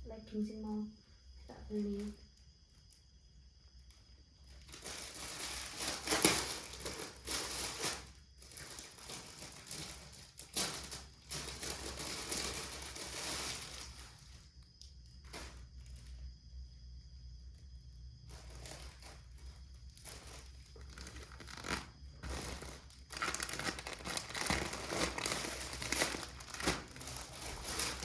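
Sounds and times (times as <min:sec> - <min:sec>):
plastic packaging crinkling: 0:04.5 - 0:14.5, 0:15.2 - 0:16.1, 0:18.3 - 0:28.0.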